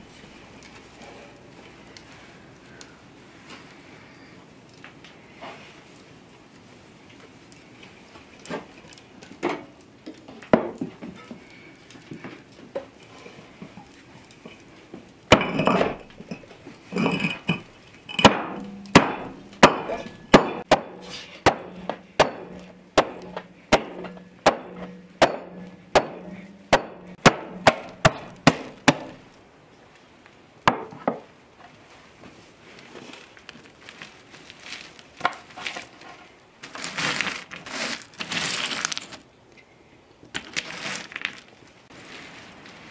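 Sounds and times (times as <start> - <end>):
hammer striking wood: 18.2 - 29.2.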